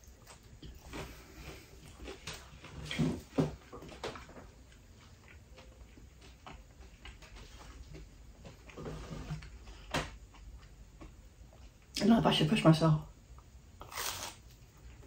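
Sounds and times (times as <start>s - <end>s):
faint chewing: 0.0s - 12.0s.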